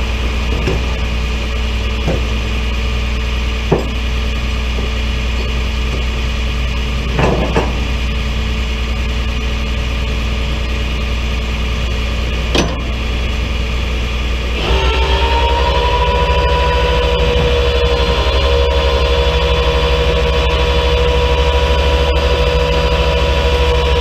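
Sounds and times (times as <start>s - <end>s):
engine running: 0.0s - 24.0s
rising whine: 0.0s - 24.0s
sharp knocks: 3.7s - 4.1s.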